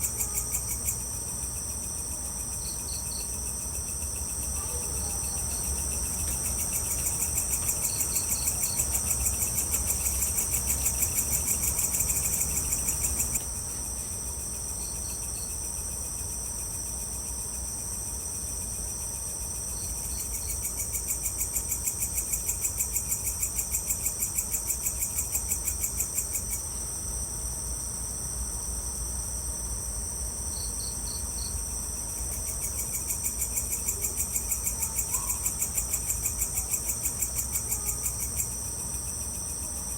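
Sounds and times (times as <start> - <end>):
higher insect chirps: 0.0 - 39.9
insects trilling: 0.0 - 39.9.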